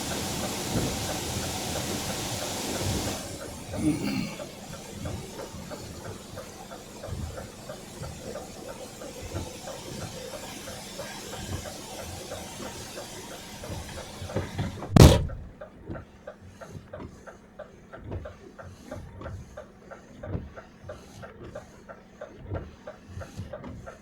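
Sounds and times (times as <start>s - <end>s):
loud brief knock: 14.9s - 15.5s.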